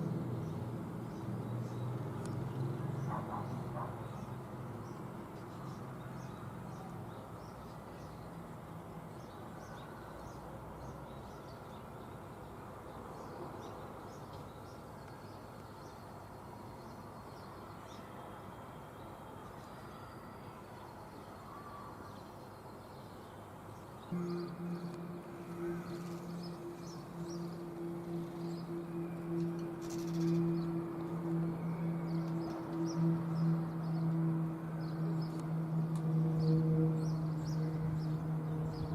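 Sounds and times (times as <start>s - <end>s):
propeller aircraft flying overhead: 0.0s - 9.3s, 24.1s - 38.9s.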